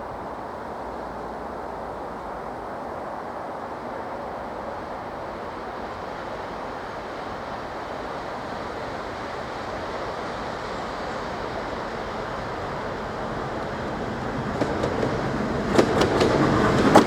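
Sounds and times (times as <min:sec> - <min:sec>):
diesel locomotive rumbling: 0:08.3 - 0:17.0.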